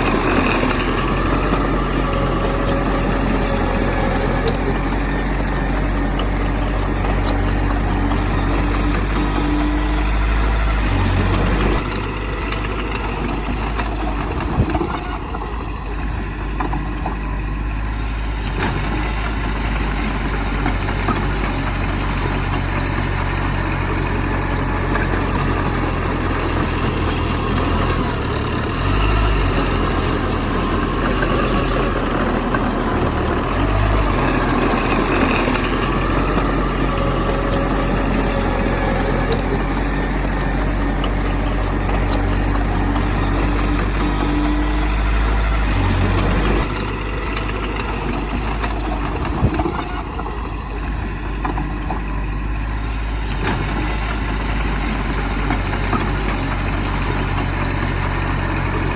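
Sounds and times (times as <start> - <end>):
heavy diesel engine running: 0.0 - 58.9.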